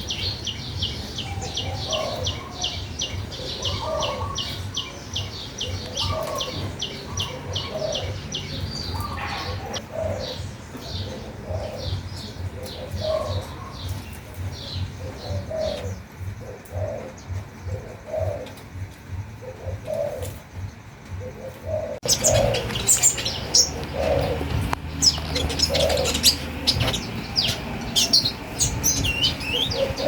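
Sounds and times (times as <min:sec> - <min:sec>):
low cooing calls: 0:00.0 - 0:30.0
bird chirping high: 0:21.4 - 0:30.0.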